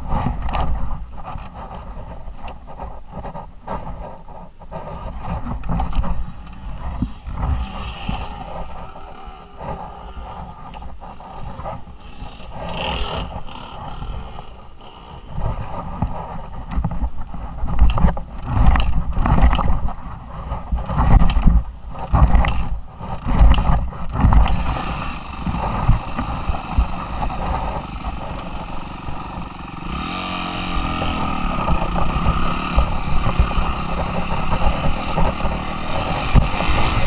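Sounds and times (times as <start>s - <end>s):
wind buffeting microphone: 0.0s - 37.0s
dirt bike engine revving: 6.2s - 15.8s, 22.2s - 37.0s.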